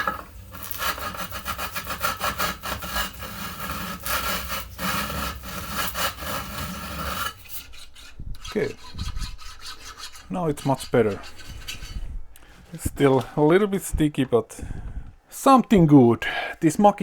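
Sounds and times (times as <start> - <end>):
abrasive scraping on sliding rail: 0.0 - 12.0.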